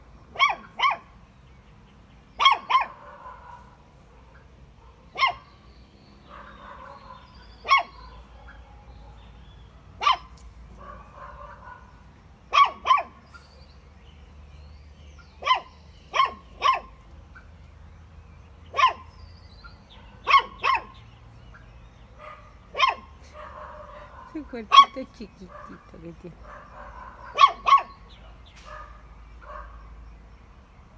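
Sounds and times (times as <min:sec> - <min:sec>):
puppy yipping: 0:00.4 - 0:01.1, 0:02.4 - 0:03.0, 0:05.2 - 0:05.4, 0:06.3 - 0:08.8, 0:10.0 - 0:11.8, 0:12.5 - 0:13.2, 0:15.4 - 0:17.0, 0:18.7 - 0:19.2, 0:20.0 - 0:21.0, 0:22.2 - 0:25.9, 0:26.5 - 0:28.1.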